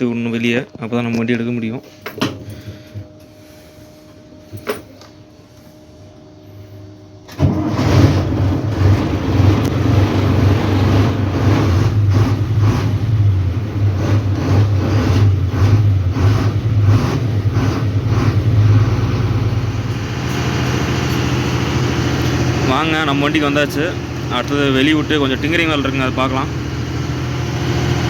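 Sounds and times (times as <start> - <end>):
diesel truck engine running: 7.4 - 28.0.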